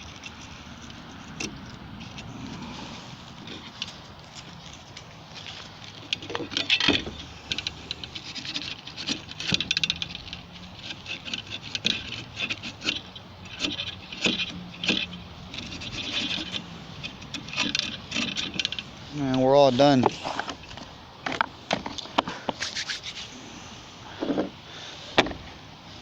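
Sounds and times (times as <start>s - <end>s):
abrasive scrubbing strokes: 0.0s - 5.7s, 22.6s - 23.9s.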